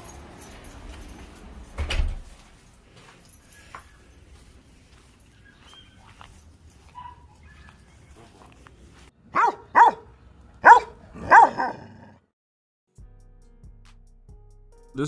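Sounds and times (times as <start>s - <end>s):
dog barking: 6.8s - 8.3s, 9.3s - 12.2s.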